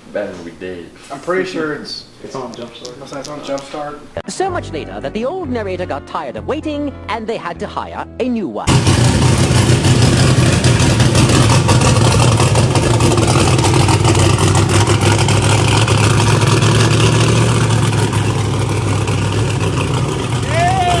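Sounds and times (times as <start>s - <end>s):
loud race engine running: 8.7s - 21.0s.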